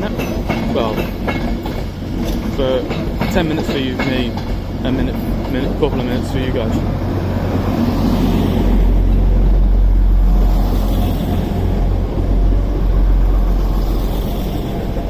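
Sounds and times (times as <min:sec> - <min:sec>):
diesel train rumbling: 0:00.0 - 0:15.0.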